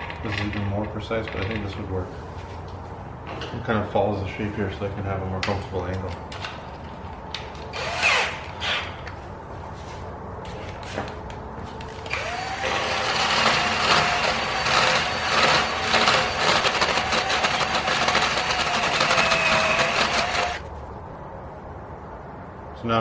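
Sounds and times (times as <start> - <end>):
drill motor whine: 7.8 - 8.4, 12.0 - 20.7
grinding bit scraping metal: 12.0 - 20.7.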